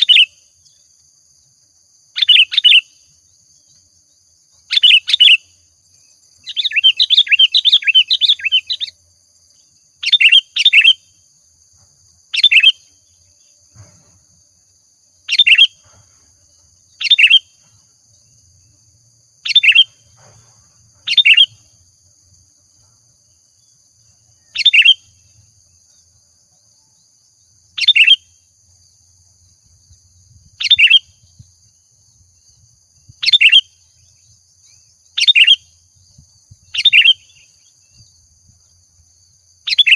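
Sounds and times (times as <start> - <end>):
sharp bird calls: 0.0 - 0.5, 2.2 - 3.1, 4.6 - 5.6, 6.3 - 9.0, 9.6 - 11.2, 12.3 - 13.4, 15.2 - 16.1, 16.9 - 17.9, 19.4 - 21.7, 24.2 - 25.4, 27.7 - 28.4, 30.3 - 31.5, 33.1 - 35.8, 36.5 - 38.2, 39.6 - 39.9
bird chattering: 6.4 - 8.9, 15.3 - 15.8, 17.0 - 17.5, 19.4 - 20.0, 21.1 - 21.6, 24.5 - 25.1, 27.8 - 28.2, 35.2 - 35.6.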